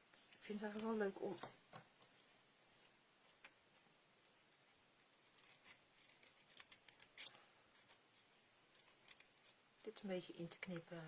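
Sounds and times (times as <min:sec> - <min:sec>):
scissors snipping paper card: 0:05.4 - 0:07.3, 0:08.7 - 0:09.6.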